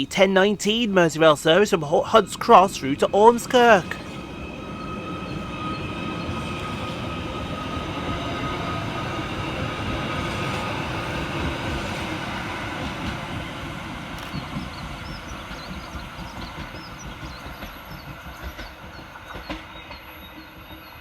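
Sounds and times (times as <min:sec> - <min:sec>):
electric train running: 0:00.0 - 0:21.0.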